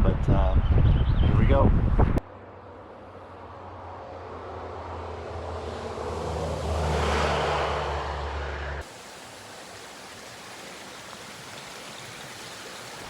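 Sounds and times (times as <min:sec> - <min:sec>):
vehicle passing: 0:02.6 - 0:13.0
creek rushing: 0:08.8 - 0:13.0.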